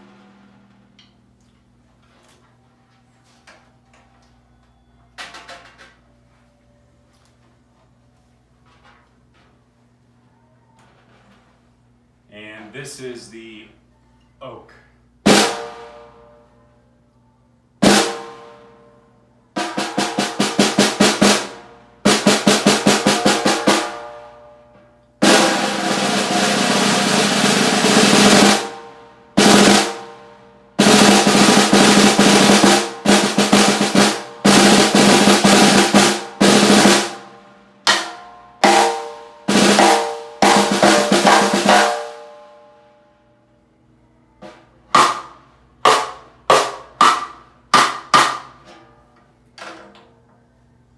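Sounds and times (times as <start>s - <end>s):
snare drum strikes and rolls: 30.8s - 37.3s, 37.9s - 42.4s, 44.4s - 48.8s.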